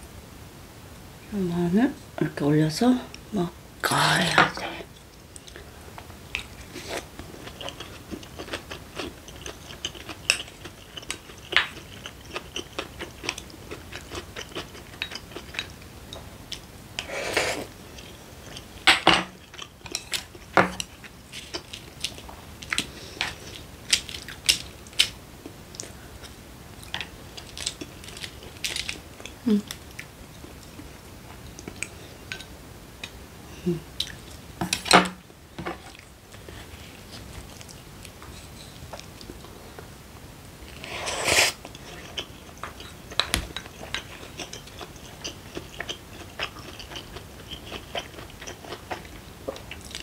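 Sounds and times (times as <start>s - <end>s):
person chewing: 6.4s - 32.5s, 40.7s - 50.0s.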